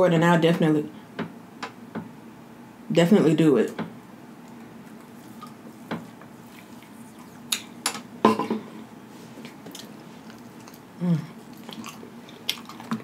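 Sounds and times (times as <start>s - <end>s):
wet mouth smacks while chewing: 11.5s - 13.0s.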